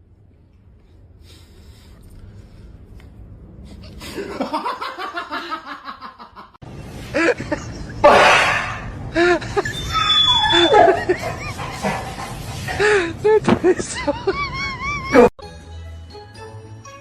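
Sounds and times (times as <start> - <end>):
person laughing: 9.1 - 11.9, 13.6 - 15.3.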